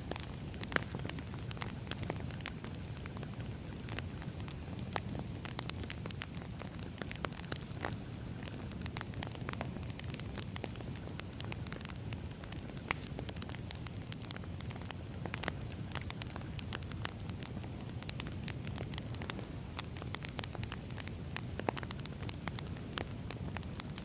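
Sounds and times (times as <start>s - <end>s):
burning logs popping and crackling: 0.0s - 24.0s
low rumble of flames: 0.0s - 24.0s.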